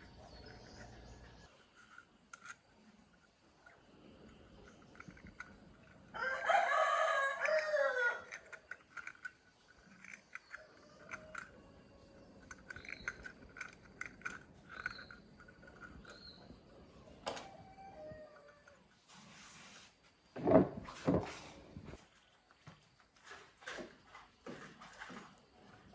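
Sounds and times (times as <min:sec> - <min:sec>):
rooster crowing: 0:06.1 - 0:08.4.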